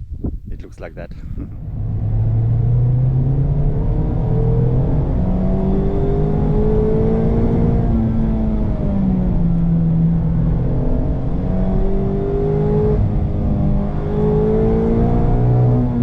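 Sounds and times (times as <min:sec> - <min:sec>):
car engine accelerating: 0:01.4 - 0:16.0.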